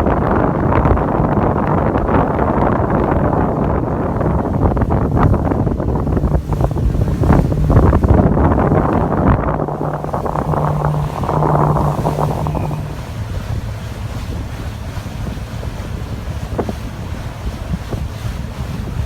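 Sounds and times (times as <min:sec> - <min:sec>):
wind buffeting microphone: 0:01.2 - 0:13.5
boat motor: 0:04.2 - 0:19.0.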